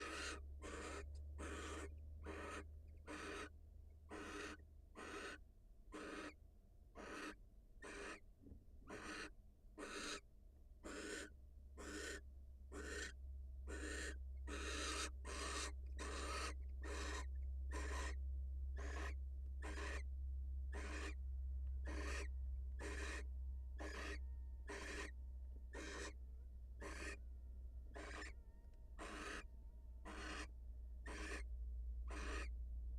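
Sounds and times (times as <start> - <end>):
owls giving rasping hiss calls: 0.0 - 3.5, 4.1 - 6.4, 7.0 - 8.2, 8.9 - 10.2, 10.8 - 18.2, 18.8 - 20.0, 20.7 - 21.2, 21.8 - 23.2, 23.8 - 25.1, 25.7 - 26.2, 26.8 - 27.2, 28.0 - 28.3, 29.0 - 31.5, 32.1 - 32.5
low steady hum: 0.0 - 6.9, 9.4 - 32.9.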